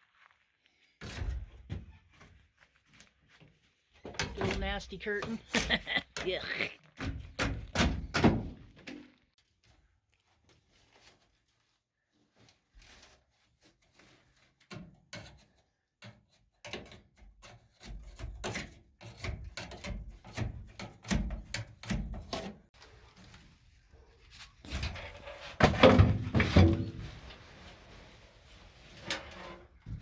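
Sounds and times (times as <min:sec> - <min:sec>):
knocks and scrapes on panelling: 0:14.7 - 0:22.6, 0:24.2 - 0:30.0.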